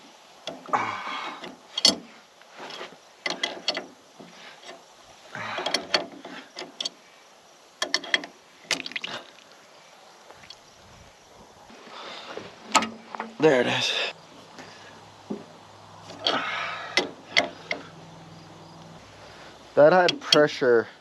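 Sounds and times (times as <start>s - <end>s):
metallic coupler clicks: 20.0s - 20.6s.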